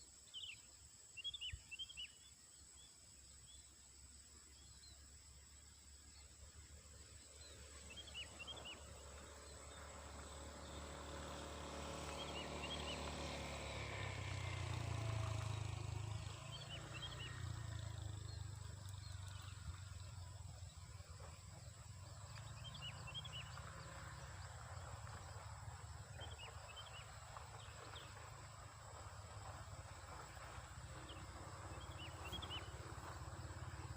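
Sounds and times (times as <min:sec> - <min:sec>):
distant engine hum: 0:05.8 - 0:33.9
small bird chirping: 0:31.0 - 0:33.9.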